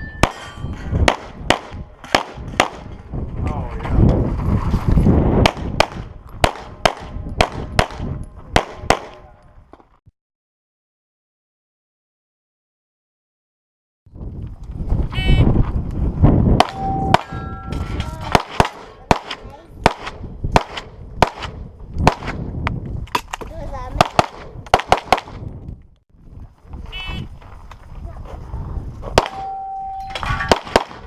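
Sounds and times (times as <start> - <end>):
pistol shots: 1.1 - 2.9, 5.4 - 9.2, 18.2 - 22.4, 24.0 - 25.4, 29.2 - 29.5, 30.2 - 31.0.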